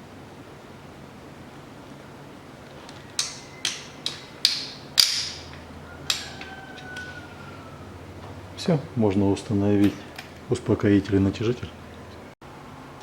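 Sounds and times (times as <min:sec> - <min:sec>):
torque wrench clicking: 0:03.1 - 0:07.1.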